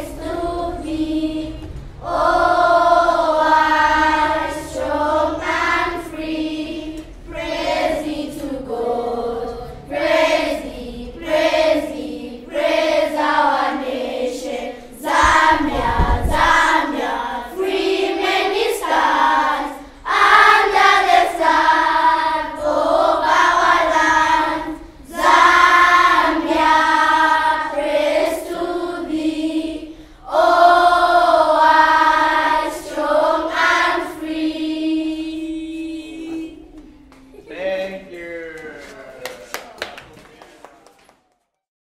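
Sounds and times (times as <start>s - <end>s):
girls singing in chorus: 0.0s - 37.4s
low thump: 15.1s - 16.9s.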